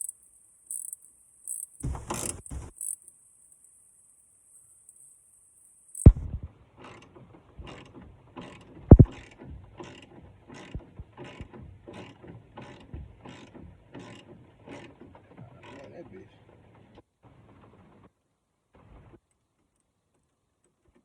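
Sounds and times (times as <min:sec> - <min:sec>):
ratchet wrench clicking: 0:00.0 - 0:03.0
sharp knock: 0:06.1 - 0:06.5, 0:08.9 - 0:09.2.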